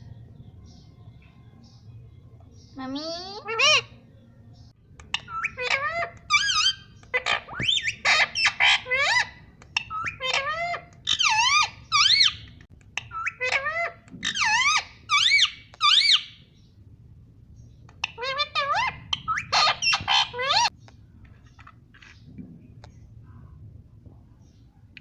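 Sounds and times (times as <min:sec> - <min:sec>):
parrot squawking and whistling: 0:03.4 - 0:04.0, 0:05.1 - 0:16.4, 0:18.0 - 0:20.7.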